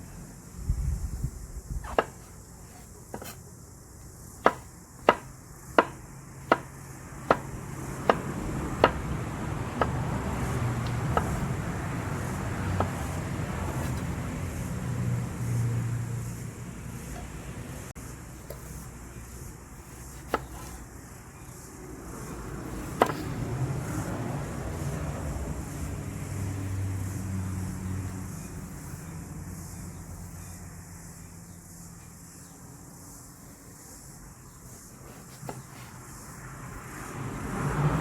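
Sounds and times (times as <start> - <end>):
knife chopping on cutting board: 1.8 - 2.3, 4.4 - 6.7, 7.3 - 9.0, 10.8 - 11.4, 20.1 - 20.8, 23.0 - 23.3.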